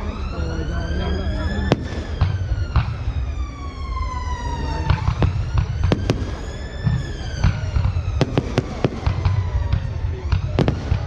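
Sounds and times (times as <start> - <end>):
fireworks bangs and cracks: 1.1 - 3.3, 4.5 - 11.0.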